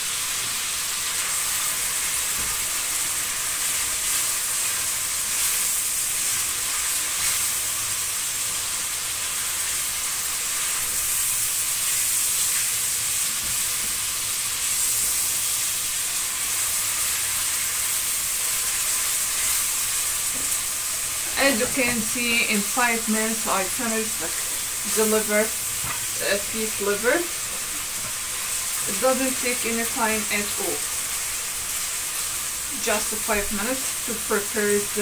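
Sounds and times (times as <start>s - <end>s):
food sizzling in a frying pan: 0.0s - 35.0s.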